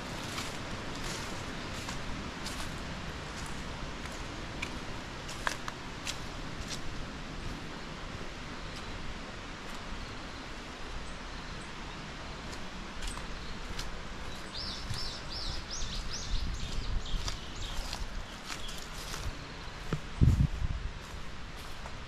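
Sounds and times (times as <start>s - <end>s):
steady woodland hiss: 0.0s - 22.0s.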